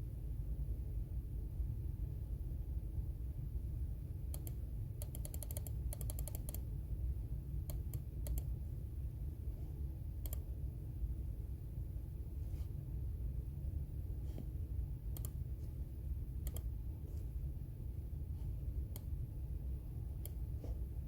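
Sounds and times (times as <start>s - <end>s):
low background hum: 0.0s - 21.0s
keyboard typing: 4.3s - 6.6s, 7.7s - 8.5s, 16.4s - 16.7s.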